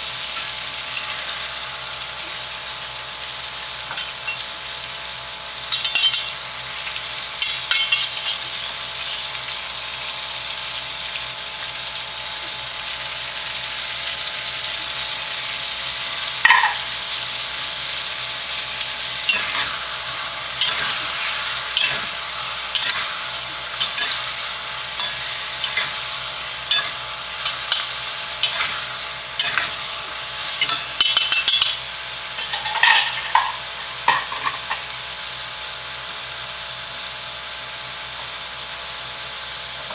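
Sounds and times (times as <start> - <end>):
stir-fry sizzling in a pan: 0.0 - 39.9
spatula scraping a pan: 19.3 - 31.8.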